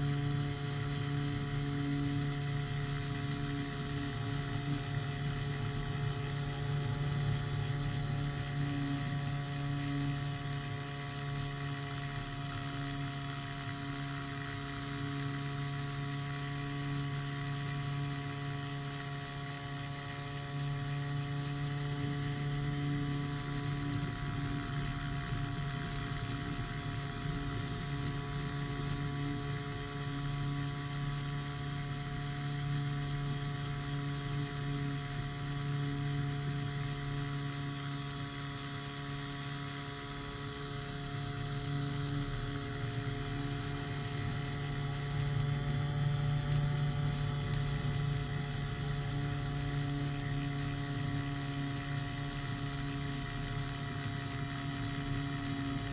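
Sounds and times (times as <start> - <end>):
engine and propeller running: 0.0 - 55.9.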